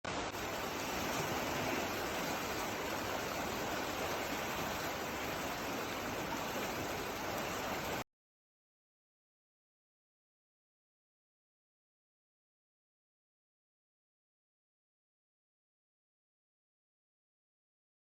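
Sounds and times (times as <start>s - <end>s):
flowing water rushing: 0.0s - 8.0s.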